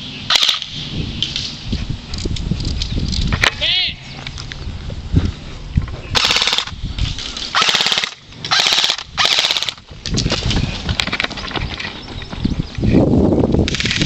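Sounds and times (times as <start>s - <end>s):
airsoft gun rapid-fire bursts: 6.2s - 6.7s, 7.6s - 9.8s.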